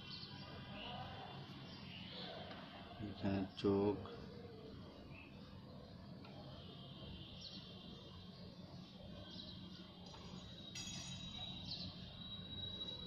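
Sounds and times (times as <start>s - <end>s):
faint bird chirps: 4.1s - 13.0s
thin high whistle: 10.3s - 13.0s.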